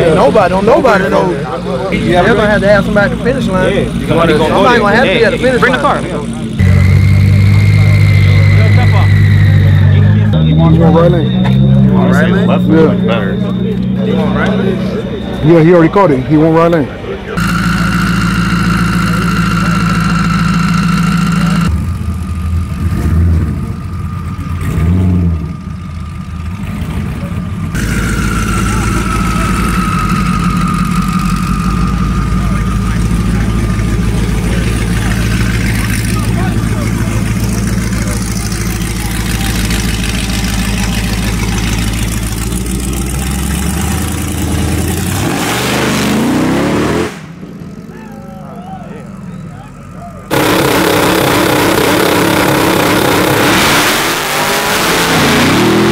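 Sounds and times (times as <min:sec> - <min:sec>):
race car engines idling: 0:00.0 - 0:55.9
engine revving on hard launch: 0:27.8 - 0:47.5, 0:50.3 - 0:55.9.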